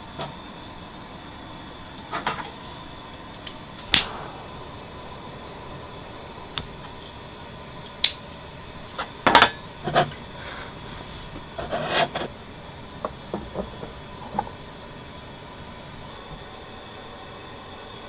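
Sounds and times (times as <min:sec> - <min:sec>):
steady background hum: 0:02.1 - 0:15.4.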